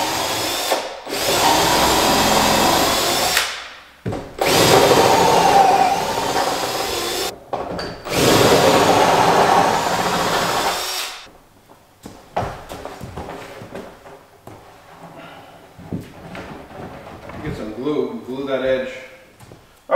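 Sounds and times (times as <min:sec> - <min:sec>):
power tool whining: 0:00.0 - 0:03.4, 0:04.4 - 0:07.3, 0:08.1 - 0:11.3.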